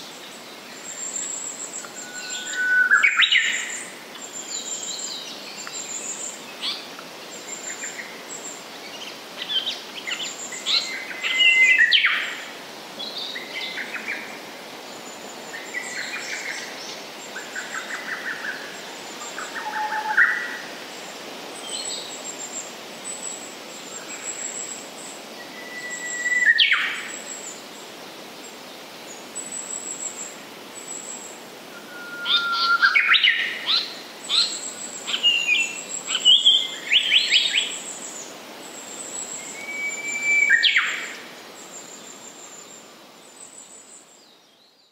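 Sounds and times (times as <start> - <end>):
bird singing whistled phrases: 2.0 - 3.6, 25.5 - 26.9, 31.7 - 37.7, 39.4 - 41.1
loud sweeping bird calls: 30.9 - 44.0.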